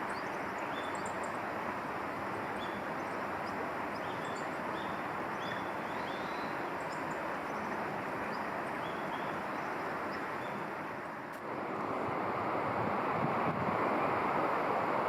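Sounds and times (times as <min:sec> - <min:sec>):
small birds chirping: 0:02.4 - 0:10.7
steady rushing noise: 0:09.8 - 0:15.0.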